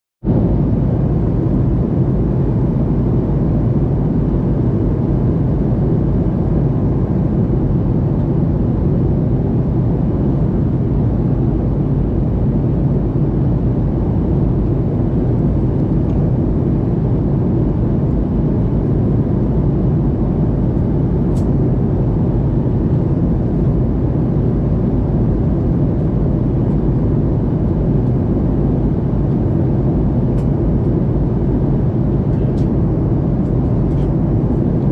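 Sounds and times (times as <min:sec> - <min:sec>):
engine drone and rushing air: 0:00.2 - 0:34.9.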